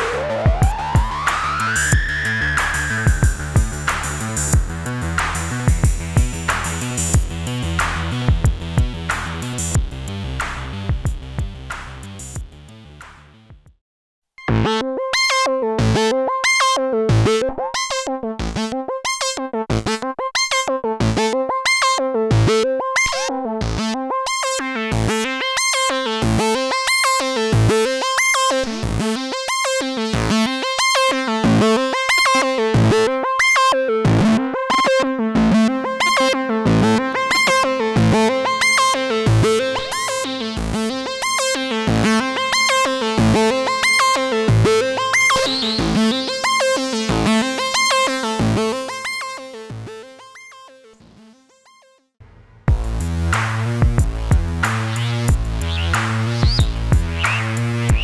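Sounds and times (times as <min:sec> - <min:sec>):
buzzy synthesizer note pattern: 0:00.0 - 0:13.0, 0:24.7 - 0:51.3, 0:52.3 - 0:58.0
synthesizer bass part: 0:00.0 - 0:13.6, 0:34.0 - 0:50.0, 0:52.2 - 0:58.0.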